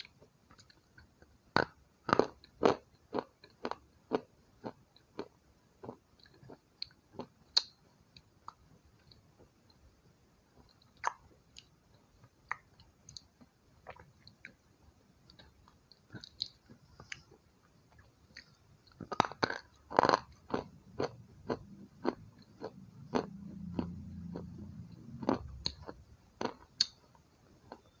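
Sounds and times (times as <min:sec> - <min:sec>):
chewing and crunching: 0:15.3 - 0:28.0.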